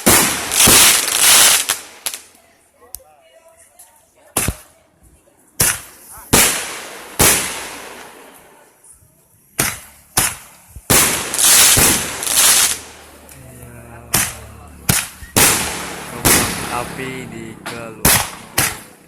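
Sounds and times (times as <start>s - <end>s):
fireworks bangs: 0.0s - 2.3s, 5.6s - 8.5s, 9.6s - 13.1s, 14.0s - 19.0s.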